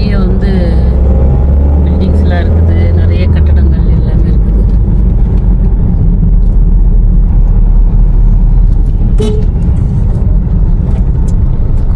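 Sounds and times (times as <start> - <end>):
car engine and road noise: 0.0 - 11.9
car horn toot: 9.0 - 9.8.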